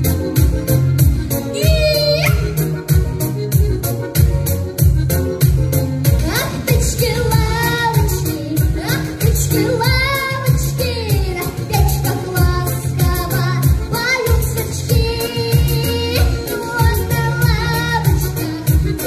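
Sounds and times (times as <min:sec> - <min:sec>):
backing track with beat and bass: 0:00.0 - 0:19.0
girl singing: 0:01.5 - 0:02.6, 0:06.2 - 0:19.0.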